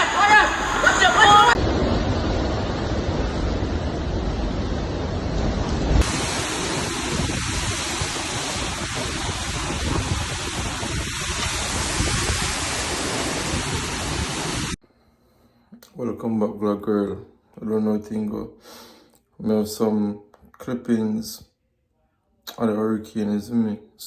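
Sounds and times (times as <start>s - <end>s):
rain: 0.0s - 14.8s
wind buffeting microphone: 0.6s - 14.8s.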